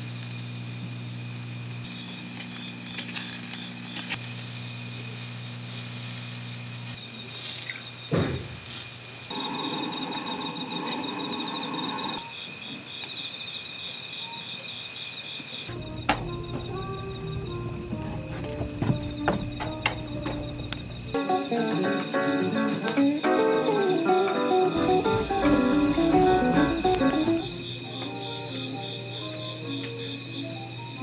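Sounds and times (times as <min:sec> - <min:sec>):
crickets trilling: 0:00.0 - 0:31.0
fast pulsing insect chirp: 0:00.0 - 0:31.0
rushing noise: 0:23.7 - 0:27.8.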